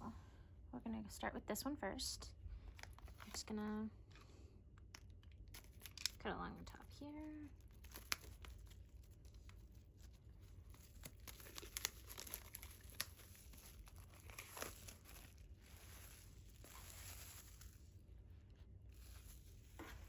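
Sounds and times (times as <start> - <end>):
plastic wrap crinkling and tearing: 2.6 - 3.5, 4.8 - 20.0.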